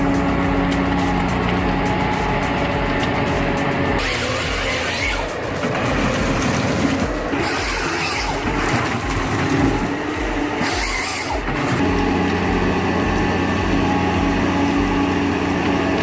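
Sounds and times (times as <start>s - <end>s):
heavy machine engine running: 0.0s - 16.0s.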